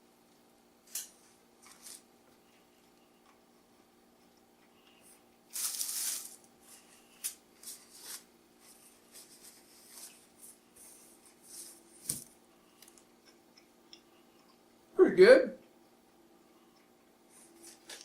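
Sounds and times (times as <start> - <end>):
crinkly rustle: 0.9 - 3.0, 4.8 - 13.1
person chewing a wrap: 1.6 - 5.5, 12.6 - 14.8, 16.7 - 18.0.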